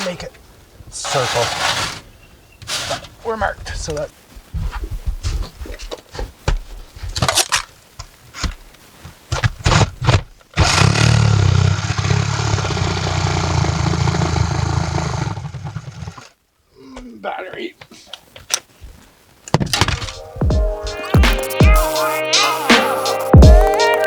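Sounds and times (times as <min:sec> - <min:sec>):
reciprocating saw cutting roof shingles: 0:00.9 - 0:04.0, 0:09.3 - 0:16.4
handling knocks and clicks: 0:17.8 - 0:20.6.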